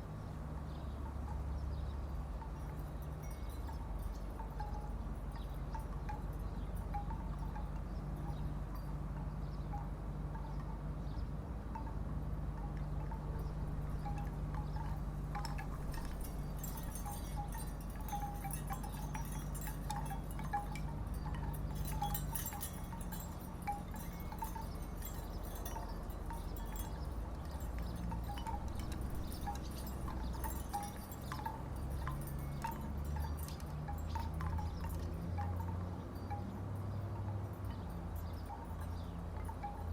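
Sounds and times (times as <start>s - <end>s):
wooden wind chimes knocking: 0.6s - 39.9s.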